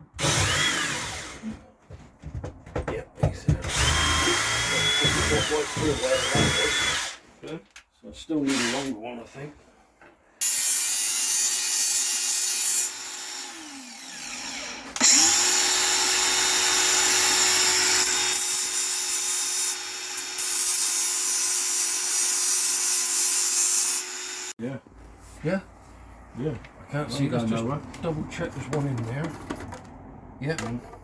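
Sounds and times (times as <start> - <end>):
electric drill drilling steel: 0.2 - 1.4, 3.7 - 7.2, 10.4 - 24.6.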